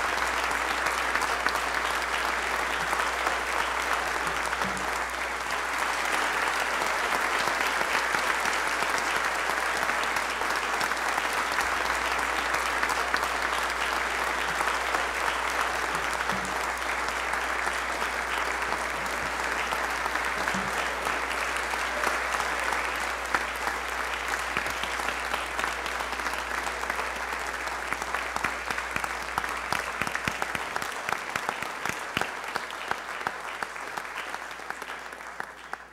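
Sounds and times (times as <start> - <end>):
audience applauding: 0.0 - 35.9.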